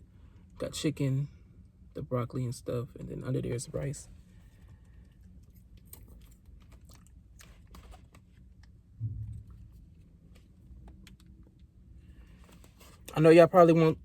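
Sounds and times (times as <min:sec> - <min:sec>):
low thump: 0:09.0 - 0:10.0.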